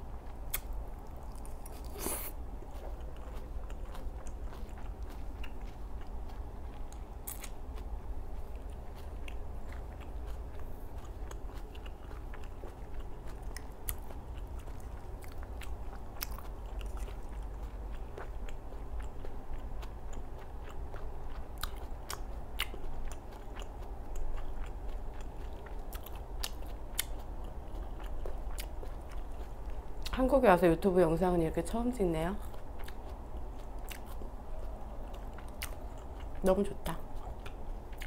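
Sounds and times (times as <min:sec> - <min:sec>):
chewing salad: 0:00.0 - 0:38.0
wet lip-smacking clicks: 0:00.5 - 0:00.8.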